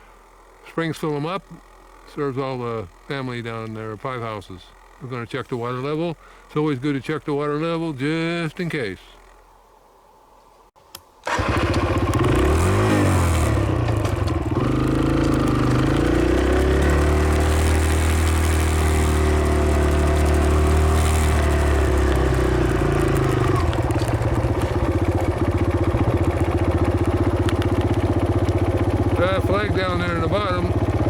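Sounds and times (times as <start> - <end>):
dirt bike engine revving and idling: 11.3 - 31.0.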